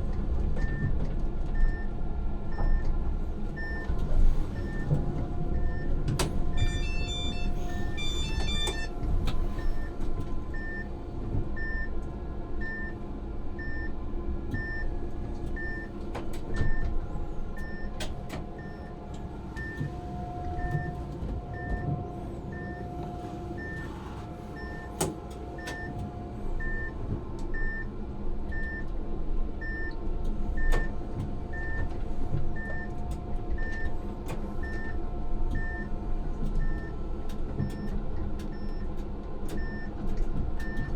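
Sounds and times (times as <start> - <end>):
tram rumbling: 0.0 - 38.6
short electronic beep: 6.6 - 8.9.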